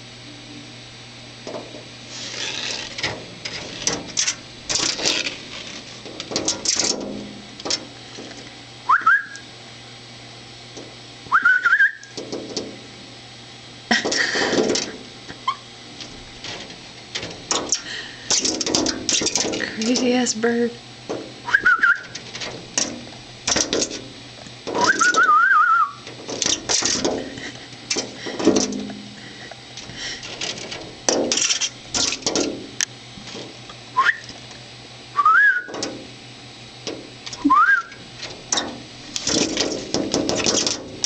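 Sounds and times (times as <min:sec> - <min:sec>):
short rising whistles: 0:08.9 - 0:09.4, 0:11.3 - 0:12.1, 0:24.9 - 0:26.0
bird pecking on window glass: 0:38.2 - 0:41.0.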